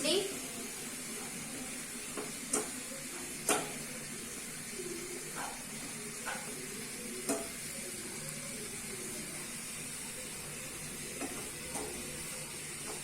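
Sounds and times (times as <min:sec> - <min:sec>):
food sizzling in hot oil: 0:00.0 - 0:13.0
spoon clicking against pan: 0:02.2 - 0:02.8, 0:03.4 - 0:03.8, 0:07.2 - 0:07.6, 0:11.2 - 0:12.0.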